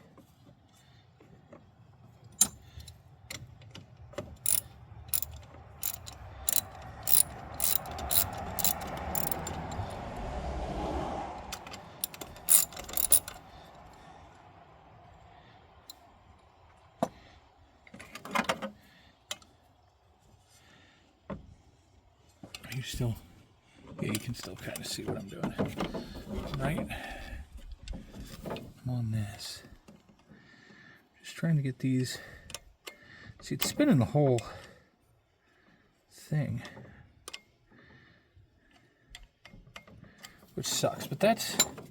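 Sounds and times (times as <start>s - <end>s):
sharp metal clicks and rattles: 4.2s - 9.9s, 11.6s - 13.5s.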